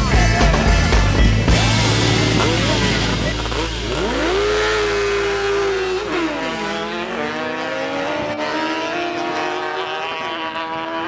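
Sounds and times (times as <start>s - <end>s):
drag racing car engine revving: 0.0s - 11.0s.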